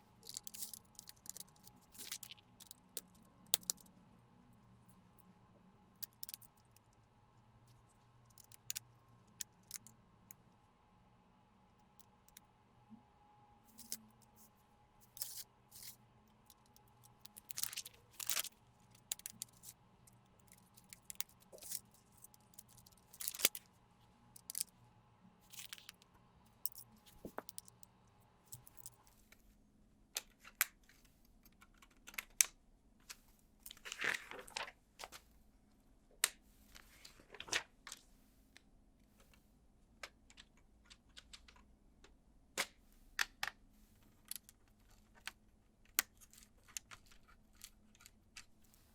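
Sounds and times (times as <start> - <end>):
plastic parts clicking together: 0.2 - 3.9, 6.0 - 6.8, 8.2 - 10.0, 15.2 - 19.8, 20.4 - 23.7, 30.2 - 35.2, 40.0 - 43.6, 44.2 - 48.6
plastic parts rustling scrapes: 15.1 - 16.0, 33.7 - 35.2.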